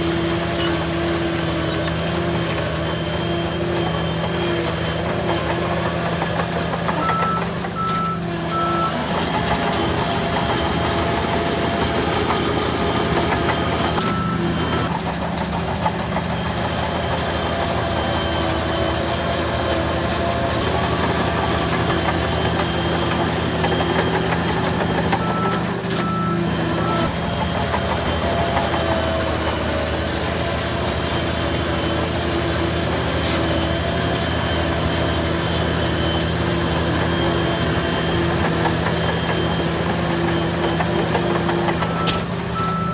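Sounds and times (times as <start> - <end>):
heavy machine diesel engines: 0.0 - 42.9
reversing alarm beeps: 6.9 - 9.0, 11.9 - 14.9, 20.8 - 27.1, 35.2 - 42.9.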